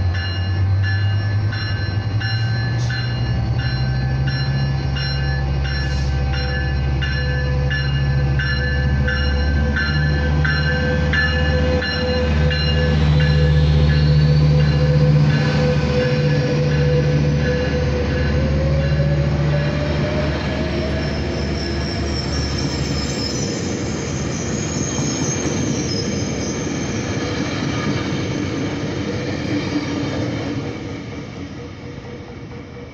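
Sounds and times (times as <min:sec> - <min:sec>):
diesel locomotive engine hum: 0:00.0 - 0:32.9
train cars rolling past: 0:00.0 - 0:32.9
high wheel squeal: 0:20.6 - 0:28.5.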